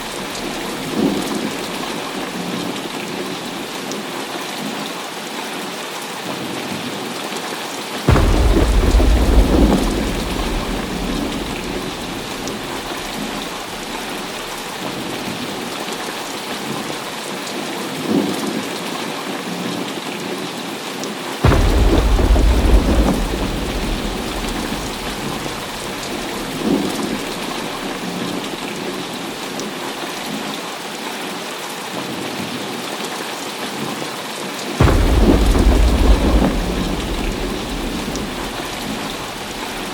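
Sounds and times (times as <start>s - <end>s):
thunderclaps: 0.0s - 3.0s, 8.1s - 15.7s, 21.4s - 29.2s, 34.8s - 39.9s
heavy rain: 0.0s - 39.9s
deep thunder rumble: 8.1s - 15.6s, 21.4s - 29.1s, 34.8s - 39.9s.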